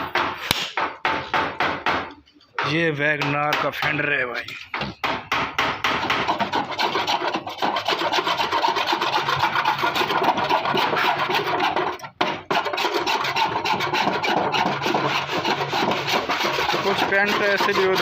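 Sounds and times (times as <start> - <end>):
rubbing paint off sheet metal: 5.8 - 18.0.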